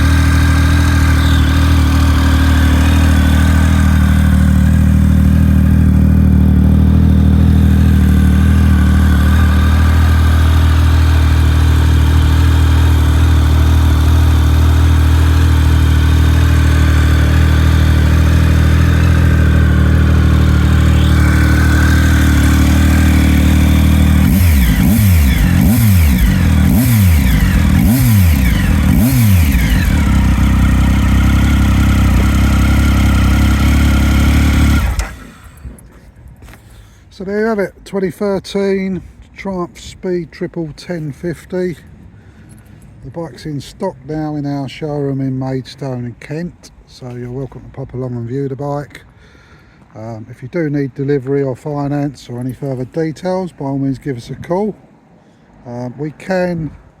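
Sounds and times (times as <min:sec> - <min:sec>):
motorcycle engine idling and revving: 0:00.0 - 0:36.6, 0:51.8 - 0:55.0.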